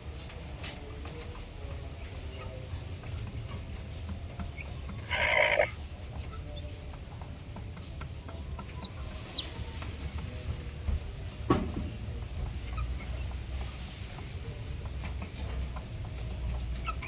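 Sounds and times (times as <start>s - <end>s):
chicken squawking: 5.0s - 5.7s, 7.5s - 9.5s.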